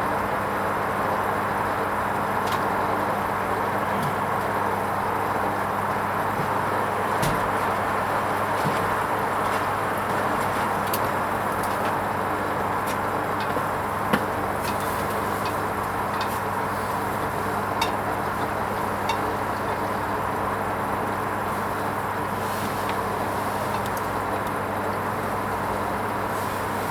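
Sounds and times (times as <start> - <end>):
washing machine running: 0.0 - 26.9.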